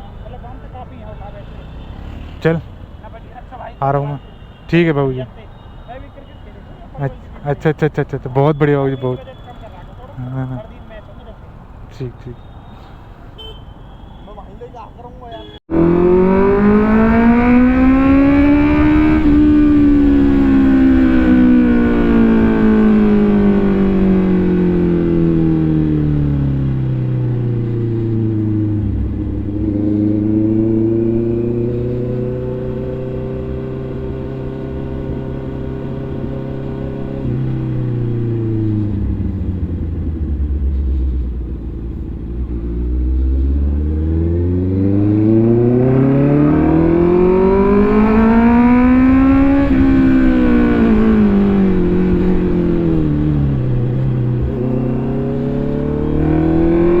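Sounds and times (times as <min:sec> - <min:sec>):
motorcycle engine: 0:15.4 - 0:57.0.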